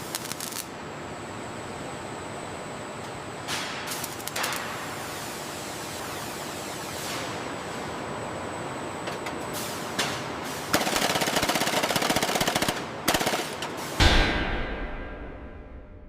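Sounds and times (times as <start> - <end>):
heavy bang with low rumble: 14.0 - 16.0.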